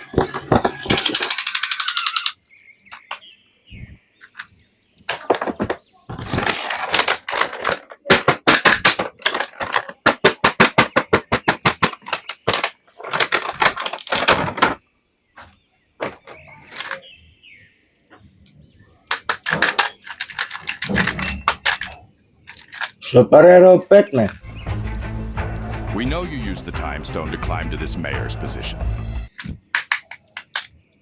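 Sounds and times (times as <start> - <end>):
quick regular clicks: 29.3 - 30.8.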